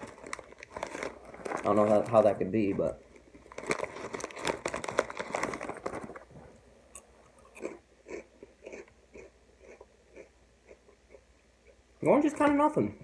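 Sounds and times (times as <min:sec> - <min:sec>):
crunching veggie straws: 0:00.0 - 0:06.2.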